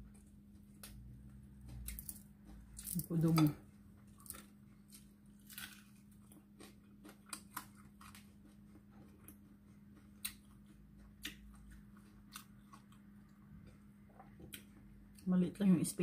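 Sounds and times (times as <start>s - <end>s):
chewing fried fish: 0.0s - 15.3s
faint low hum: 0.0s - 16.0s
crisp crunches and clicks: 1.6s - 3.5s, 4.2s - 8.6s.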